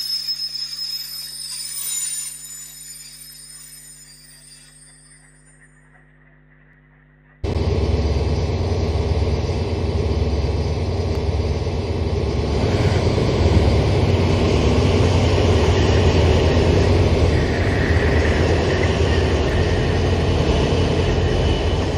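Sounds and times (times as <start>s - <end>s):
faint hum: 0.0s - 21.9s
model train rumbling: 7.4s - 21.9s.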